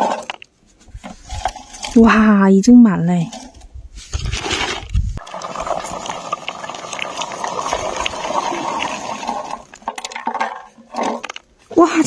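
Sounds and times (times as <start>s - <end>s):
berries rustling into a bucket: 3.3s - 11.7s.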